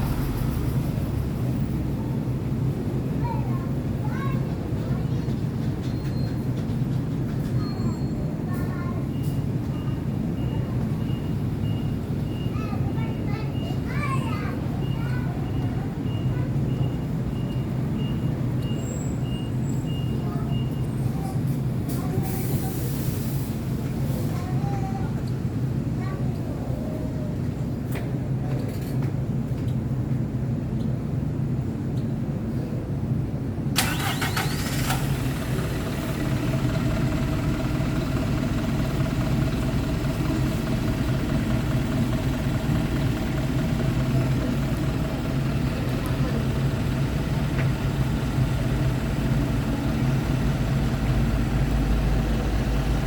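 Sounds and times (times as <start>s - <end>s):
bus diesel engine idling: 0.0s - 53.0s
air brake hiss: 21.9s - 24.3s.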